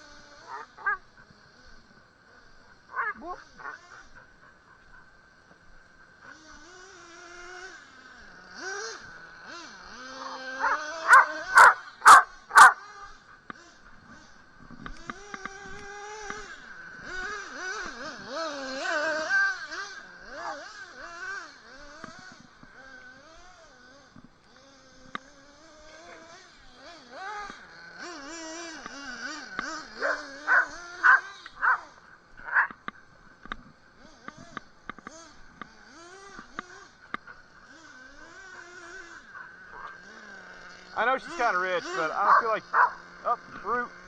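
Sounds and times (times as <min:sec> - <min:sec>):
dog whining: 0:00.5 - 0:01.0, 0:10.2 - 0:12.8
dog yelping: 0:00.5 - 0:01.0, 0:02.9 - 0:04.0, 0:10.2 - 0:12.8, 0:30.0 - 0:32.8, 0:42.2 - 0:43.0.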